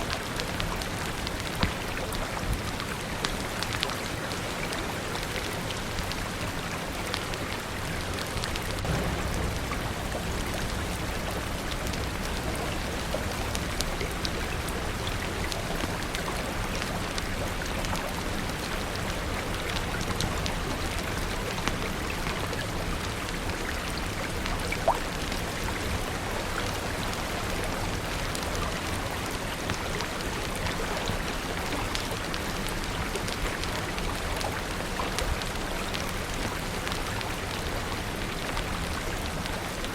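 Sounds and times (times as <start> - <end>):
fire crackling: 0.0 - 39.9
steady rain falling: 0.0 - 39.9
soft low rumble: 8.6 - 16.7.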